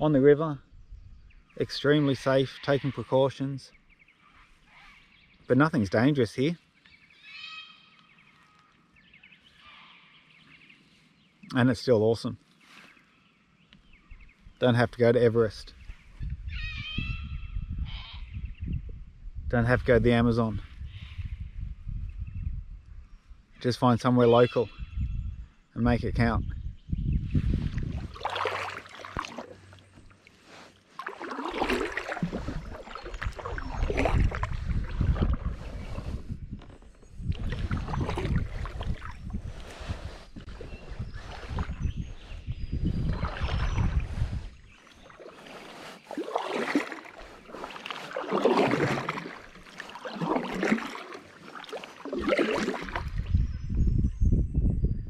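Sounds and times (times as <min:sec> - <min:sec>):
paddle splashing in water: 0:27.6 - 0:41.9, 0:42.9 - 0:53.4.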